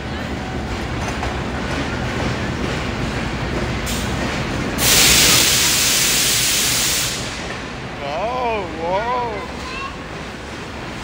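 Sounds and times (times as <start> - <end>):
train coaches rumbling past: 0.0 - 11.0
loud hiss: 4.8 - 7.6.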